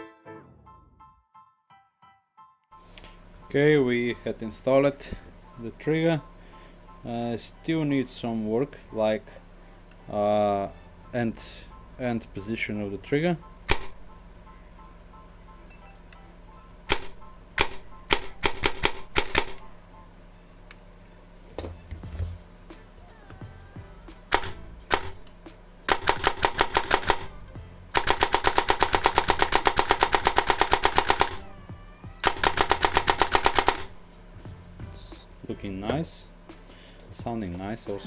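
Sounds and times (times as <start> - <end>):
airsoft gun firing: 13.6 - 14.1, 16.9 - 19.7, 24.3 - 25.3, 25.9 - 31.5, 32.2 - 34.0.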